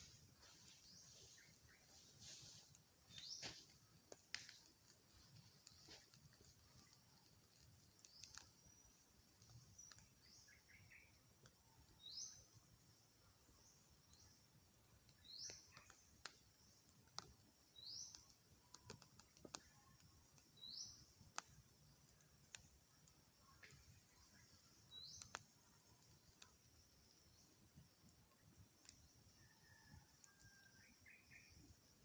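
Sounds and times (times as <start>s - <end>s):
bird chirping: 6.6s - 11.3s, 23.4s - 27.6s.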